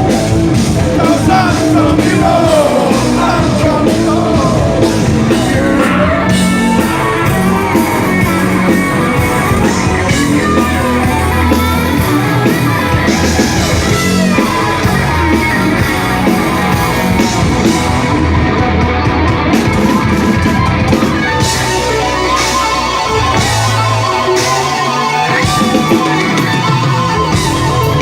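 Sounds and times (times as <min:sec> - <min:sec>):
live heavy rock band: 0:00.0 - 0:28.0
person singing: 0:00.9 - 0:06.9.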